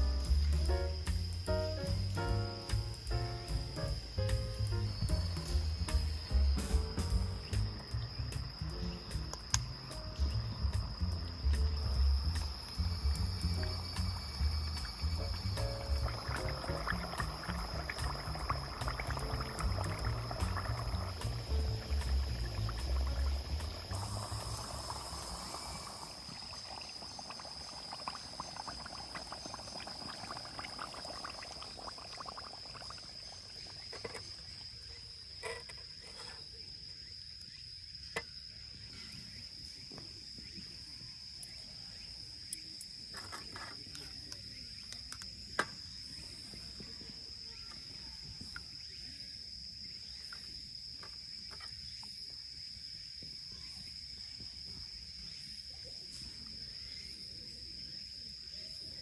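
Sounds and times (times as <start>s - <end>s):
crickets trilling: 0.0s - 59.0s
sharp clicks: 9.2s - 9.7s.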